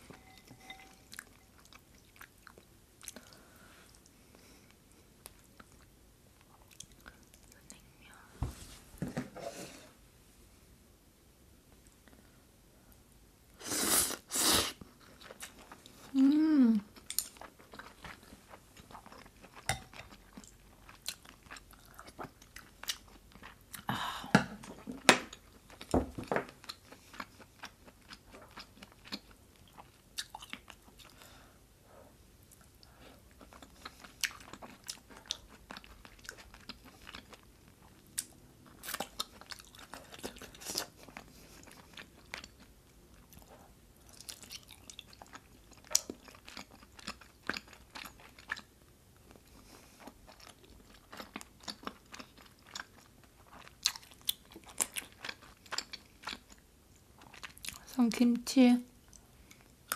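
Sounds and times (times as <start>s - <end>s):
chewing and biting food: 26.5s - 31.2s, 33.3s - 48.7s, 49.3s - 57.9s.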